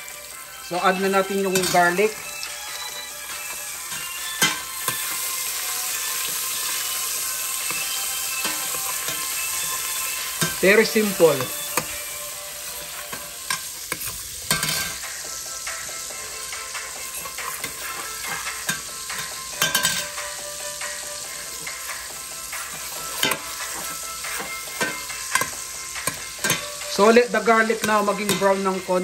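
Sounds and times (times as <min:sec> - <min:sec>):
garlic sizzling in a pot: 0:00.0 - 0:29.0
metal spoon scraping a pot: 0:01.5 - 0:02.2, 0:03.8 - 0:12.0, 0:12.7 - 0:15.0, 0:17.1 - 0:20.2, 0:22.7 - 0:28.8.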